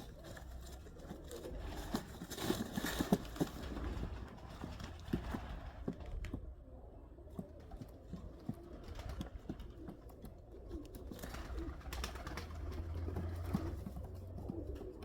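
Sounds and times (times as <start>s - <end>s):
rustling flutter: 0.0s - 6.3s.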